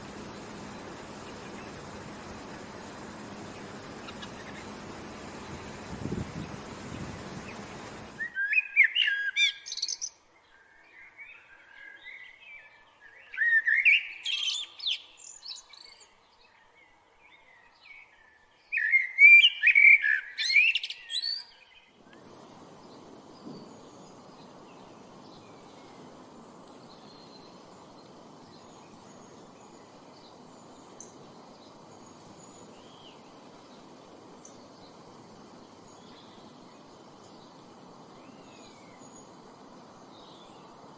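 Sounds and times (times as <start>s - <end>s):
outdoor hiss: 0.0s - 8.4s, 20.0s - 40.9s
faint bird chirps: 0.0s - 40.9s
songbird singing chirps and trills: 0.0s - 40.9s.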